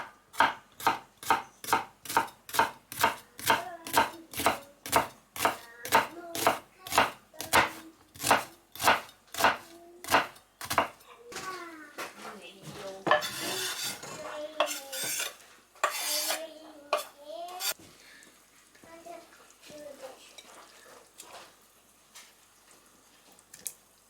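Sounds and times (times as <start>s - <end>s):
knife chopping on cutting board: 0.0s - 11.0s, 14.6s - 17.8s.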